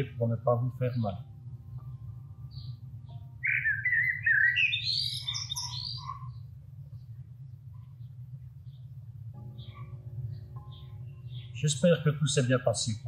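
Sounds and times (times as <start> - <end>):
low steady hum: 0.0 - 13.0
faint bird chirps: 1.7 - 11.8
songbird warbling: 3.4 - 7.1, 8.0 - 11.8.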